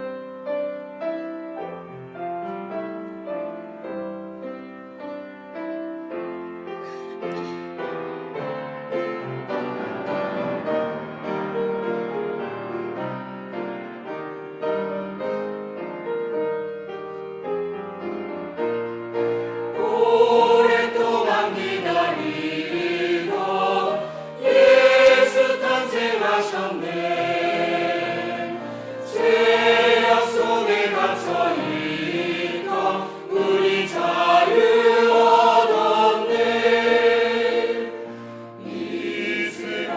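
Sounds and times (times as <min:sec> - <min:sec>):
piano playing: 0:00.0 - 0:39.9
choir singing: 0:19.6 - 0:39.9.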